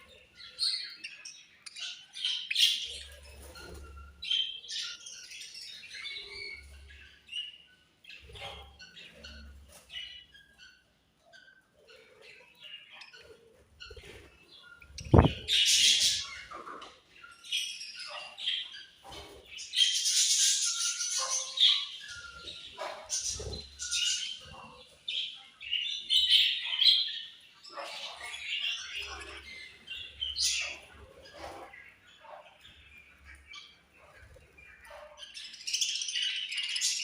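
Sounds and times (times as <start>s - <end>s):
budgerigars chirping: 0.0s - 37.0s
sharp thump: 15.0s - 15.4s.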